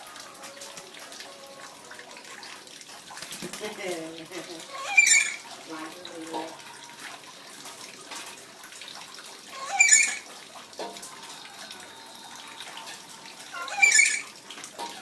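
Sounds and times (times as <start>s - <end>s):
running tap water splashing: 0.0s - 15.0s
parrot shrill calls: 4.7s - 5.5s, 9.5s - 10.3s, 12.8s - 14.4s.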